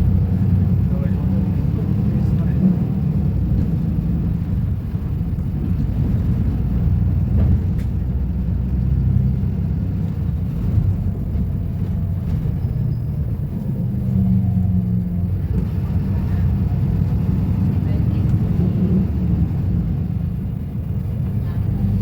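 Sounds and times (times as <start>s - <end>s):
bus engine rumbling: 0.0s - 22.0s.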